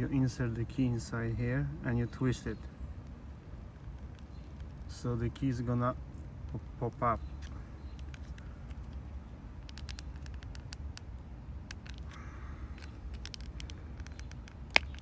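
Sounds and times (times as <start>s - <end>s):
low steady rumble: 0.0s - 15.0s
plastic key fob clicks and scratches: 7.2s - 15.0s.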